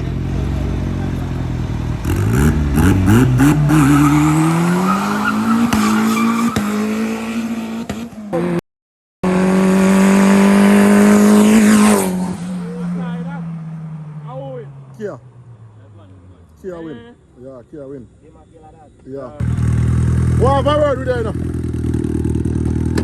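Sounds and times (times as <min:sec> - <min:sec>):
racing car engine accelerating: 0:00.0 - 0:08.6, 0:09.2 - 0:16.4.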